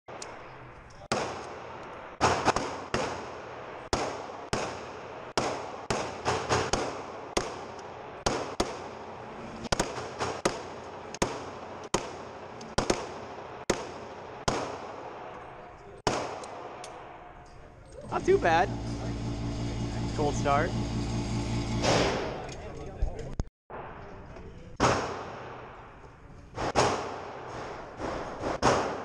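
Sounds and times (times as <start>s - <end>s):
handgun shots echoing: 1.1s - 3.3s, 9.7s - 15.4s, 16.0s - 17.2s.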